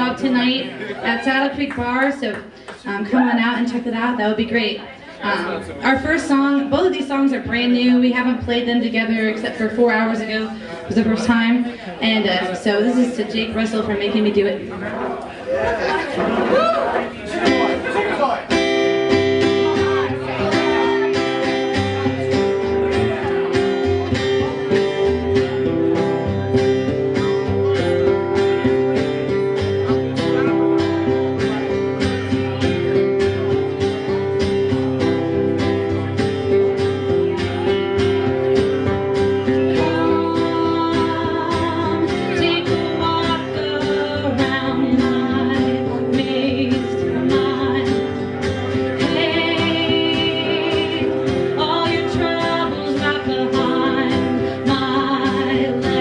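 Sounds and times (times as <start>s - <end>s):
strummed guitar: 0.0s - 56.0s
person singing: 39.4s - 56.0s.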